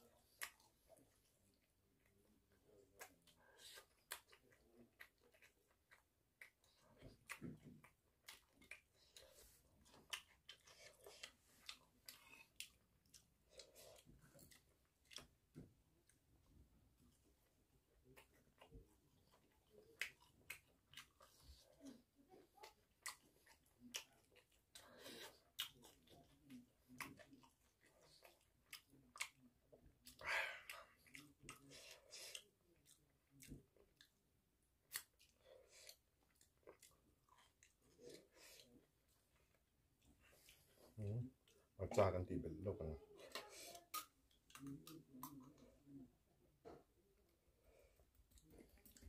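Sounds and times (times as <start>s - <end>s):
chewing food: 0.0s - 42.1s, 42.8s - 49.0s.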